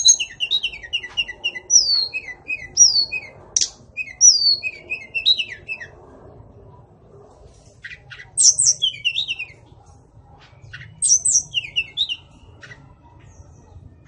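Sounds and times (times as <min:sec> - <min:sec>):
bird singing whistled phrases: 0:00.0 - 0:05.9, 0:07.8 - 0:09.6, 0:10.7 - 0:12.8.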